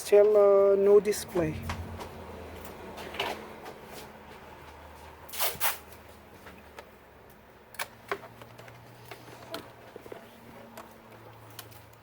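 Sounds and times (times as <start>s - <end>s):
low steady hum: 0.9s - 3.1s.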